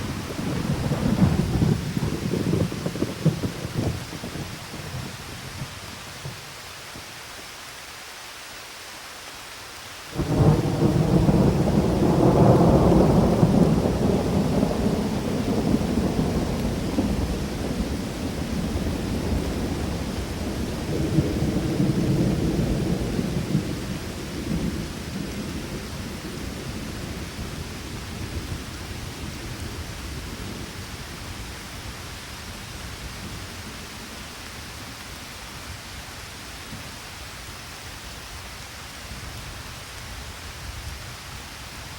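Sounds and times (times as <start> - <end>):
thunder crack and rumble: 0.0 - 6.4, 10.2 - 31.8
steady rain: 0.0 - 41.9.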